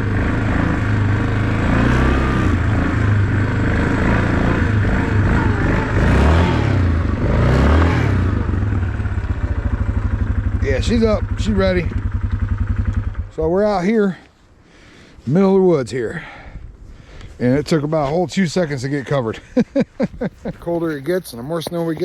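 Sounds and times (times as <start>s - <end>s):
atv engine running: 0.0s - 13.9s, 20.0s - 22.0s.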